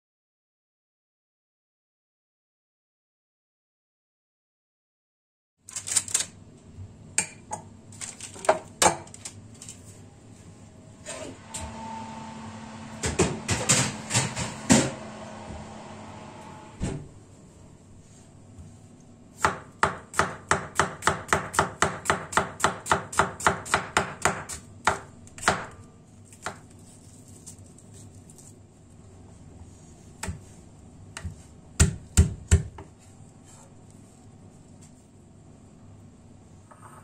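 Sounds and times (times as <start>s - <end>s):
knife chopping on a board: 19.4s - 25.8s, 31.2s - 32.9s.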